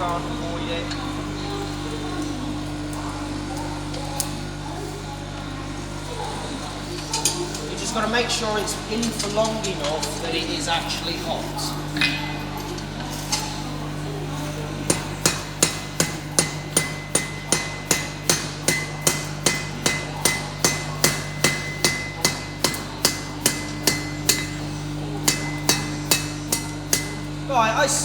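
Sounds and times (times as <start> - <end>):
steady low hum: 0.0 - 28.0
hammer striking iron on anvil: 14.8 - 27.4.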